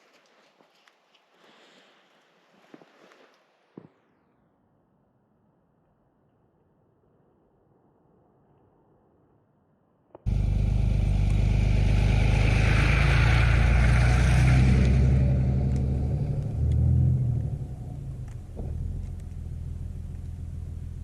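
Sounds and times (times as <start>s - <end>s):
pickup truck engine driving: 10.3s - 21.0s.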